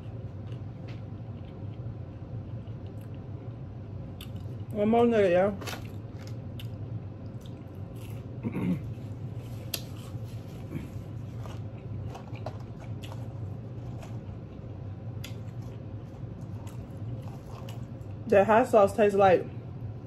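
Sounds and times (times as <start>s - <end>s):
chewing and lip smacks: 0.0s - 3.4s, 4.1s - 4.7s, 6.4s - 8.3s, 11.4s - 18.2s
steady low hum: 0.0s - 20.0s.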